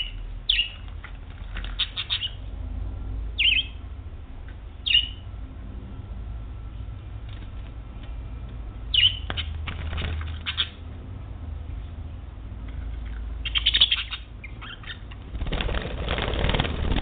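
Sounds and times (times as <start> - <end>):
budgerigar chirping: 0.0 - 0.8, 1.7 - 2.4, 3.4 - 3.8, 4.8 - 5.2, 8.9 - 9.6, 10.3 - 10.8, 13.4 - 15.3.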